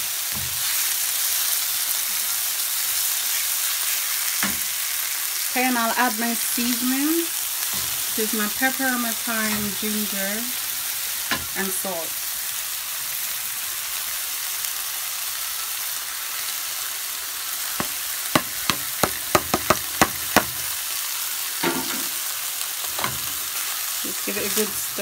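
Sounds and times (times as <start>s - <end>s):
vegetables sizzling in oil: 0.0s - 25.0s
sharp taps: 17.8s - 20.6s.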